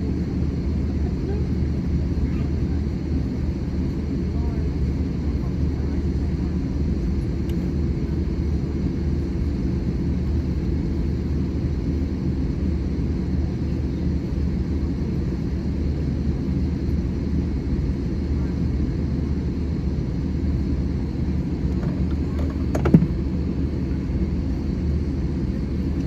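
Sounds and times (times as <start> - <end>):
aircraft cabin engine rumble: 0.0 - 26.0.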